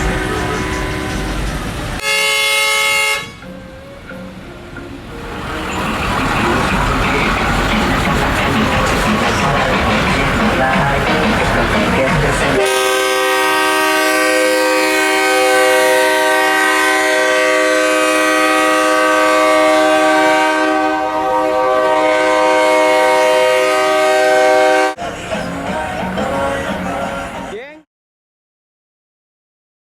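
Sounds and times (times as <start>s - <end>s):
multi-tone air horn chord: 0.0s - 4.1s, 12.5s - 25.0s.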